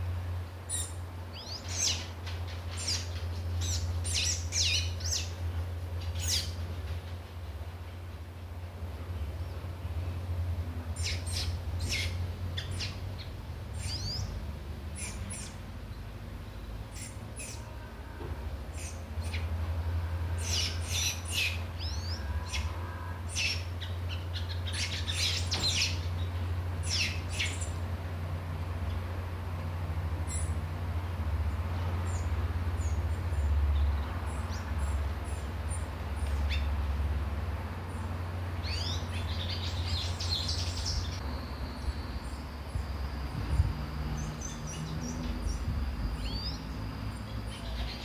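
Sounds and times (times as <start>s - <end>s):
birds chirping: 0.0s - 7.8s, 9.0s - 28.1s, 31.4s - 36.9s, 37.8s - 48.0s
steady low hum: 0.0s - 48.0s
gliding bird whistles: 44.2s - 46.8s.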